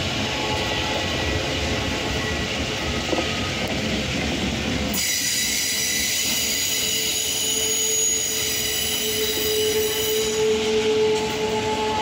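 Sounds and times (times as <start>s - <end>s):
freight train rolling past: 0.0s - 12.0s
wheel squeal whine: 4.9s - 12.0s.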